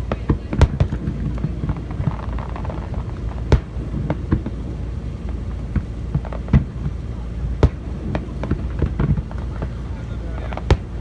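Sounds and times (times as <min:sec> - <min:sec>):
fireworks bangs: 0:00.0 - 0:11.0
steady low rumble: 0:00.0 - 0:11.0.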